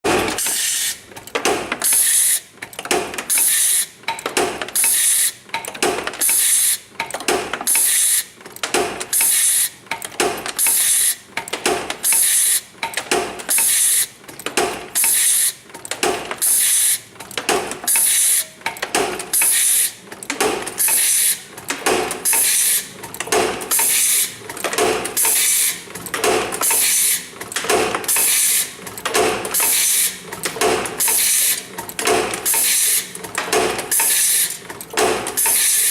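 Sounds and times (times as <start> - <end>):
mechanical clack: 0.1 - 35.9
machine hissing bursts: 20.8 - 21.4, 22.2 - 22.9, 26.6 - 27.2, 28.1 - 28.6, 29.5 - 30.2, 31.0 - 31.6, 32.2 - 35.9.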